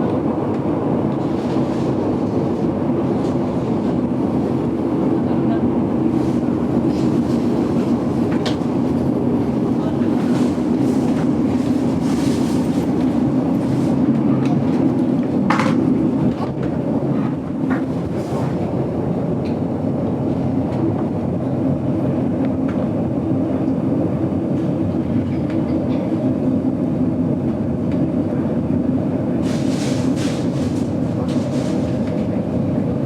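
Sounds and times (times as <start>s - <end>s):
wheels rumbling on rails: 28.9s - 33.0s.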